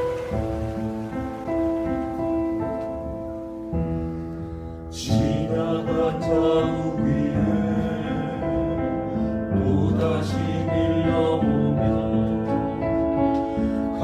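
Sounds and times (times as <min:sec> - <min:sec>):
piano accompaniment: 0:00.0 - 0:14.0
vocal ensemble singing in harmony: 0:04.9 - 0:13.2.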